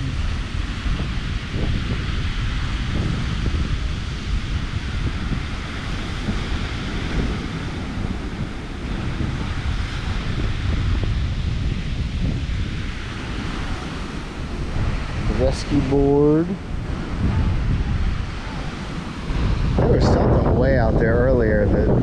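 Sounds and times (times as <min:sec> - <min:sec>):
ocean surf breaking: 0:00.0 - 0:22.0
wind buffeting microphone: 0:00.0 - 0:22.0.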